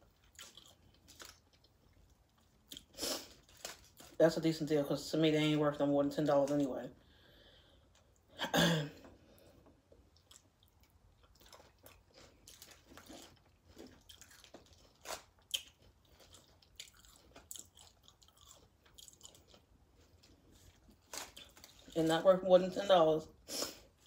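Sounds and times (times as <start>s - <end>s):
tortilla chips crunching: 0.0s - 4.3s, 9.9s - 22.5s
moist chewing: 10.0s - 22.0s.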